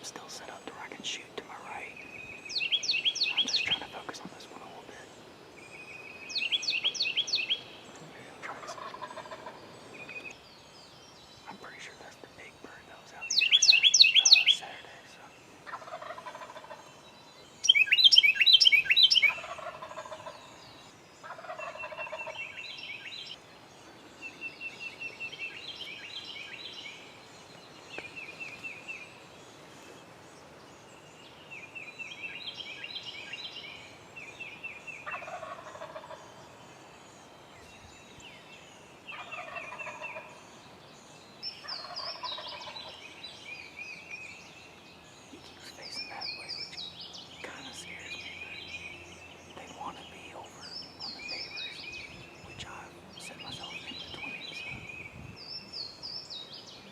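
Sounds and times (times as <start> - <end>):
small birds chirping: 0.0 - 56.9
turkey gobbling: 8.6 - 9.6, 15.7 - 16.8, 19.2 - 20.4, 21.3 - 22.4, 35.0 - 36.2, 39.1 - 40.3.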